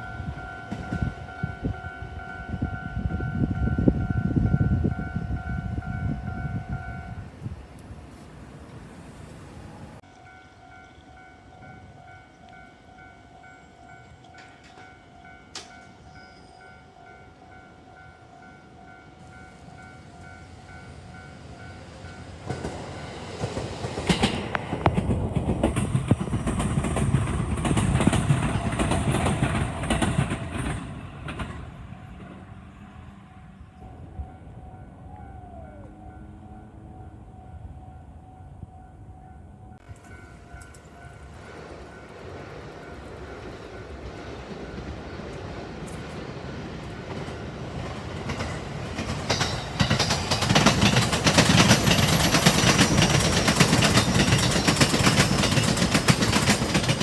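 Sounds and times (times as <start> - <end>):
level-crossing warning bell: 0.0 - 7.4, 9.6 - 23.5, 33.4 - 46.1, 47.1 - 57.0
train wheels clattering over rail joints: 22.4 - 32.4, 41.6 - 57.0.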